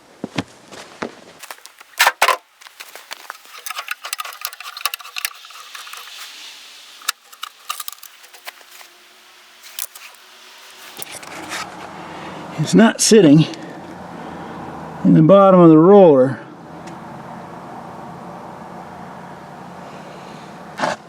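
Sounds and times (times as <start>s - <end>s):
light ticks and rattles: 1.4s - 8.9s
metal hand tools clicking: 1.4s - 8.9s, 9.6s - 11.6s.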